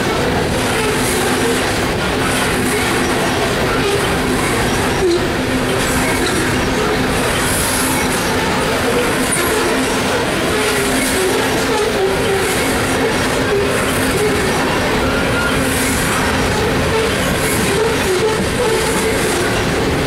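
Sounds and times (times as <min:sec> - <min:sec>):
steel train wheels on rail: 0:00.0 - 0:20.0
faint wavering wheel squeal: 0:07.3 - 0:19.6.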